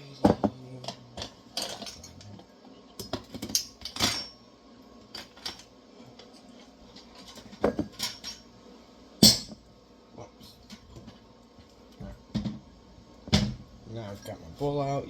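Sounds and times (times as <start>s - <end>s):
dishes clattering: 0.2s - 2.2s, 3.0s - 4.4s, 7.0s - 8.4s, 9.2s - 9.6s.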